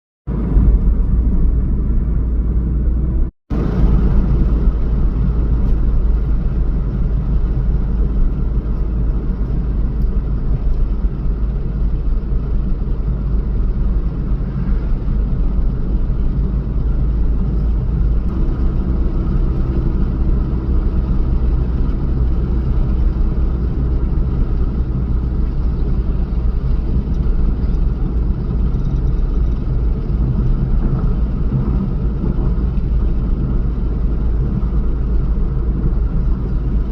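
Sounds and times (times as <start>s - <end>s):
vehicle rumbling: 0.3s - 36.9s.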